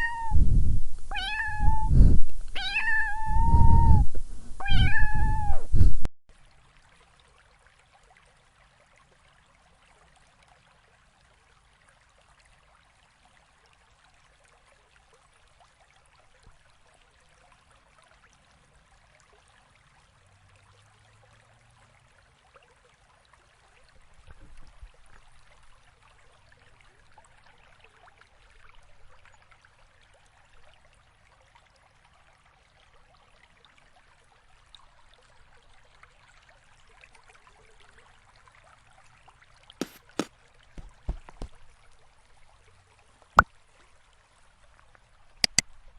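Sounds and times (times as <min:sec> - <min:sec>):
faint steady hiss: 0:00.0 - 0:06.8, 0:39.8 - 0:45.9
low thump: 0:40.8 - 0:41.6.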